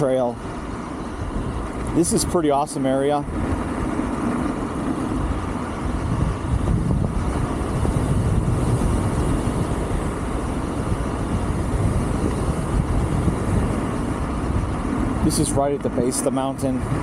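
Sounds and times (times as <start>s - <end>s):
scooter tyre noise: 0.0s - 17.0s
wind rumble on microphone: 0.0s - 17.0s.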